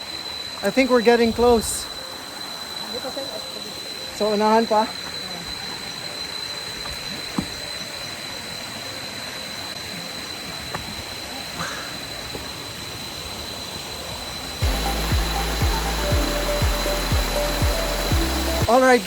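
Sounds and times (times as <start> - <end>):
thin high whine: 0.0 - 19.0
waterfall rushing: 14.6 - 19.0.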